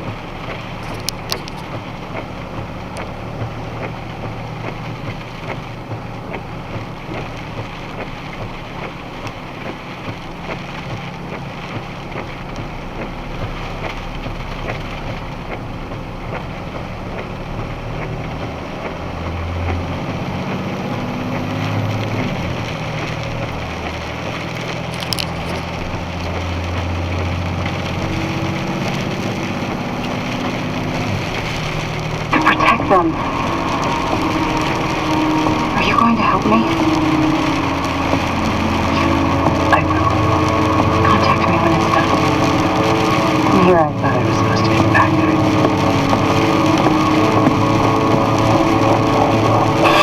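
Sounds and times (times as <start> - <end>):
truck engine and road rumble: 0.0 - 50.0.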